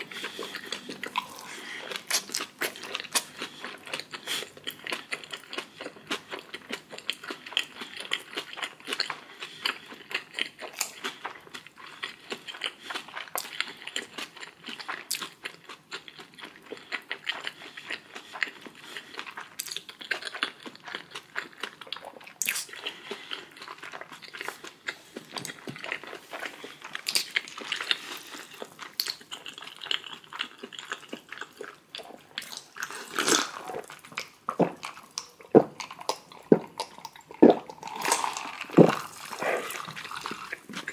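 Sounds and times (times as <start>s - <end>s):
person chewing and mouth smacking: 0.0s - 40.9s.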